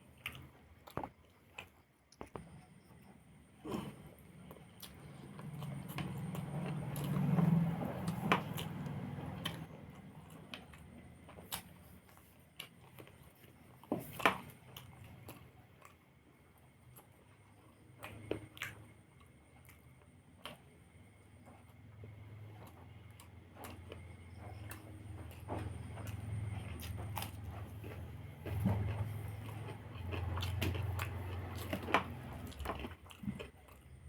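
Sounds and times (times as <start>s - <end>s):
person chewing: 0.0s - 16.0s, 22.6s - 34.0s.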